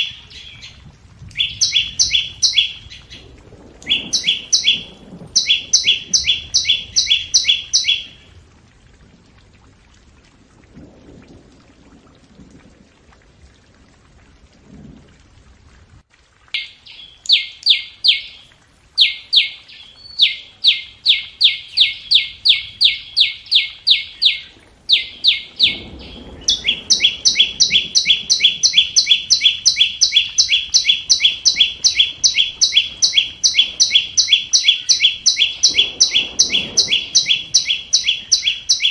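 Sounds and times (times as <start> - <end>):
bird calling sharp ticking notes: 0.0 - 3.2, 3.8 - 8.3, 16.6 - 18.4, 19.0 - 38.9.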